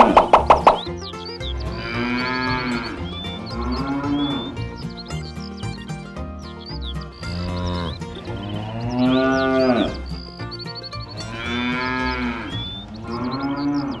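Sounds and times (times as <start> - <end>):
cattle mooing: 1.6 - 4.7, 7.2 - 10.0, 11.1 - 14.0.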